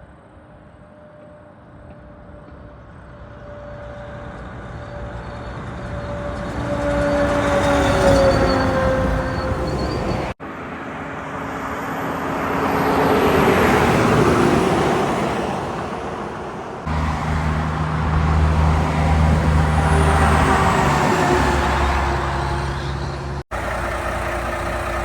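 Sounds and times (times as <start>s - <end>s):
vehicle passing by: 16.8s - 25.0s
heavy truck engine droning: 16.9s - 25.0s.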